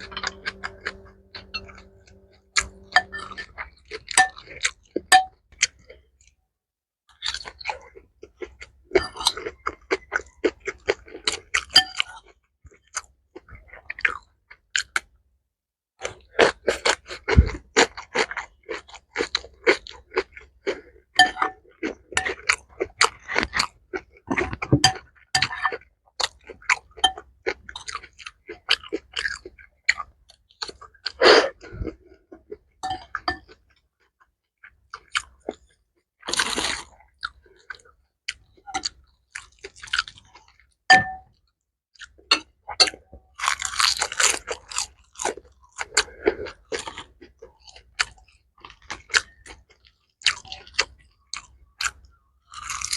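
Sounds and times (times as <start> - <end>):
wet crackly chewing: 16.0 - 40.8, 41.9 - 52.9.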